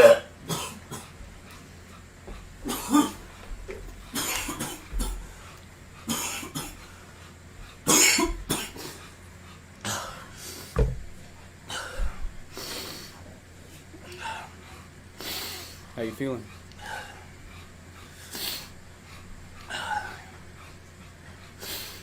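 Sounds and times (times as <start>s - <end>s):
man coughing hard: 0.0s - 1.2s, 2.6s - 3.3s, 4.1s - 5.3s, 6.1s - 6.8s, 7.9s - 8.8s.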